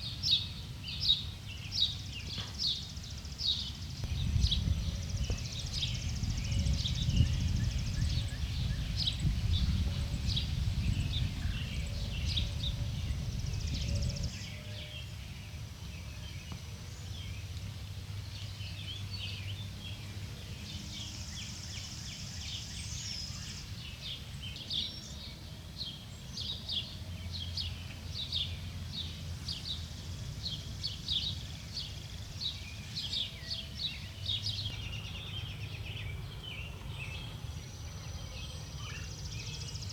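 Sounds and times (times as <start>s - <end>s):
songbirds chirping: 0.0s - 39.9s
low rumble: 4.0s - 14.3s.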